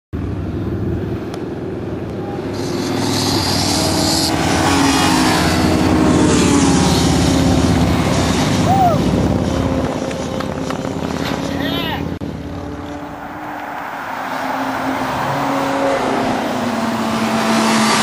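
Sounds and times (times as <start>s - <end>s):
motorcycle engines running: 0.2s - 13.7s.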